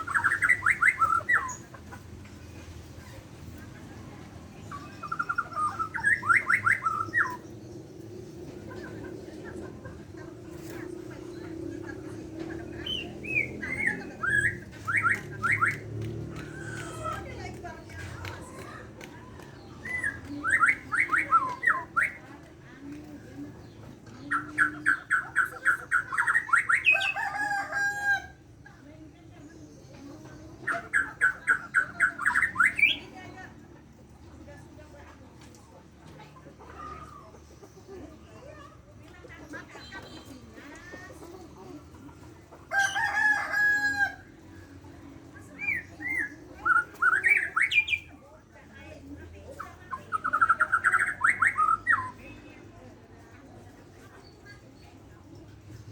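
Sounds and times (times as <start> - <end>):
rooster crowing: 26.9 - 28.4, 42.7 - 44.3.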